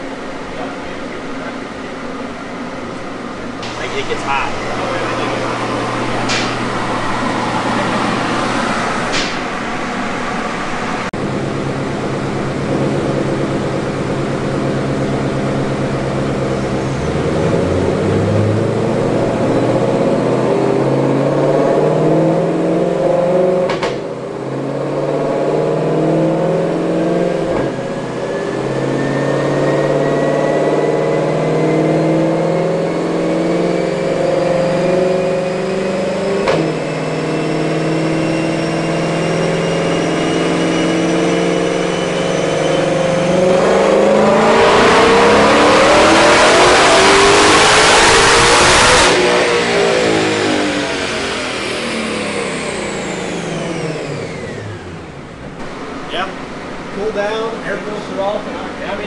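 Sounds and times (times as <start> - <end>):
car engine running: 0.0 - 59.0
thin whine: 26.9 - 46.4.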